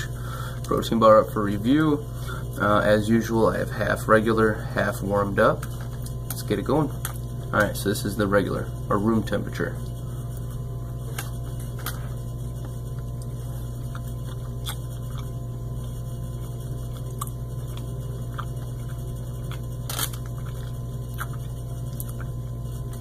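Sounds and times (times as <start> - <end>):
steady low hum: 0.0 - 23.0
person chewing crunchy bar: 9.9 - 23.0.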